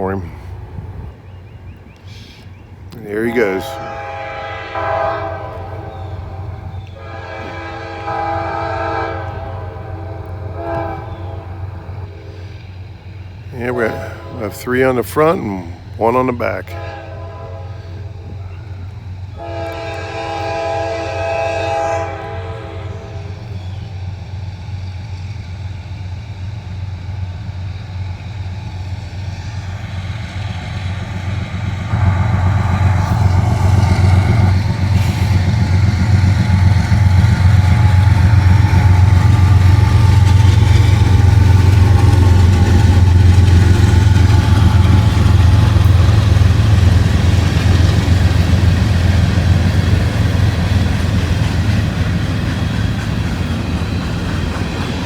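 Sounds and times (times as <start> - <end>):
locomotive horn blast: 3.2 - 12.6, 13.7 - 14.8, 16.6 - 18.6, 19.4 - 23.6, 31.9 - 50.6
steady low rumble: 27.4 - 52.4.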